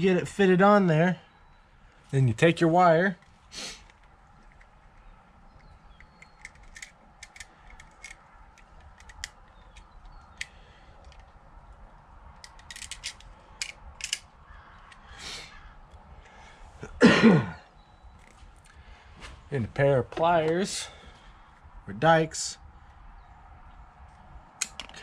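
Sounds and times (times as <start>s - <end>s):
light clicks of wire handling: 3.2s - 15.1s.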